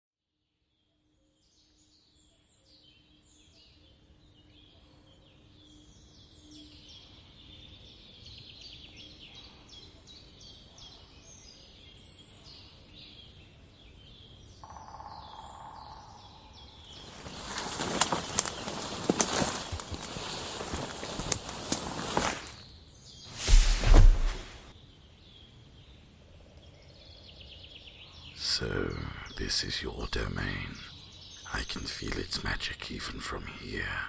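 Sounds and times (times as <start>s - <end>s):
steady low background hiss: 28.4s - 34.0s.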